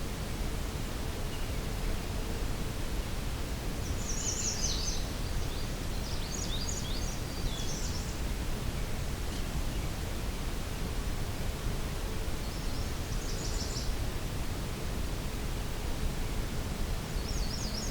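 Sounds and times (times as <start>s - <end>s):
low background noise: 0.0s - 17.9s
songbird singing: 3.8s - 10.0s, 12.4s - 14.0s, 17.0s - 17.9s.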